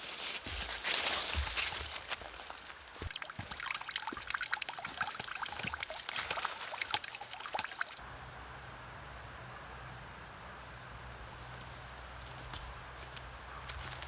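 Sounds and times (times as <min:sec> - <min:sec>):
water trickling and dripping: 0:02.9 - 0:08.0.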